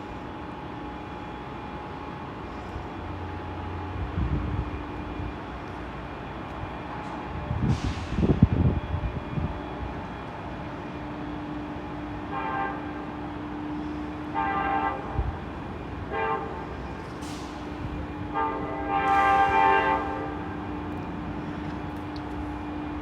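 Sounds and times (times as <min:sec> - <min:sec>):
train horn blasts: 0:12.1 - 0:21.2.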